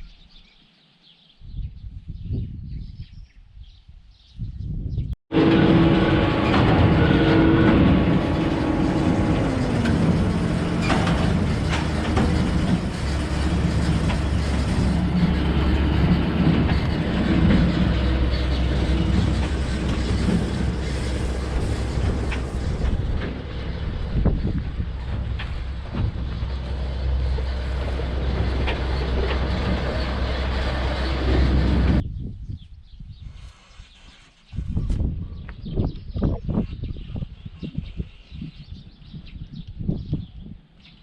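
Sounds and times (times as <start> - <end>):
rattling clanking clatter: 5.3 - 32.0
tractor diesel engine droning: 5.3 - 32.0.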